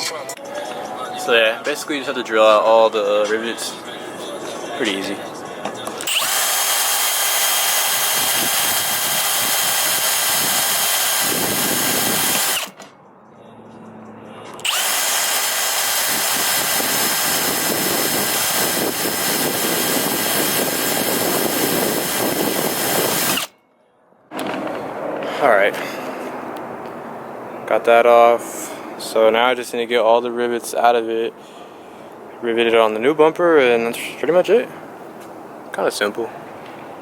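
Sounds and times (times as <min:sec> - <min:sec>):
power drill whining: 0:06.0 - 0:12.8, 0:14.6 - 0:23.5.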